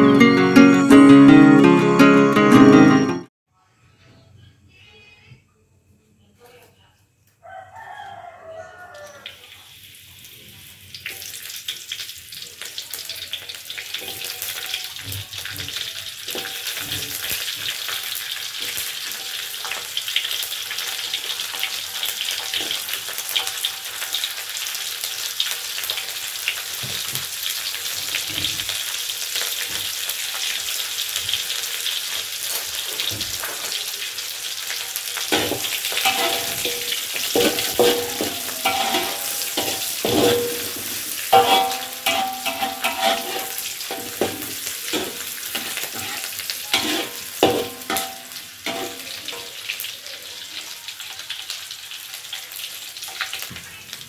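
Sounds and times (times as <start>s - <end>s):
vegetables sizzling in hot oil: 8.5s - 54.0s
metal ladle scraping a wok: 35.2s - 49.5s.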